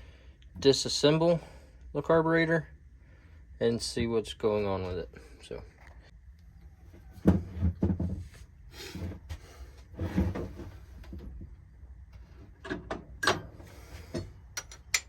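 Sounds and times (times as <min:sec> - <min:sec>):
parts and tools knocking and clattering: 0:07.0 - 0:08.4, 0:12.2 - 0:15.0.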